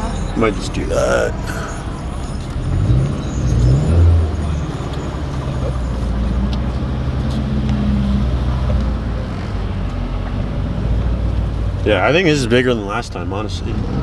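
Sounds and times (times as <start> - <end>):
car engine running: 0.0 - 9.1
road noise: 0.0 - 14.0.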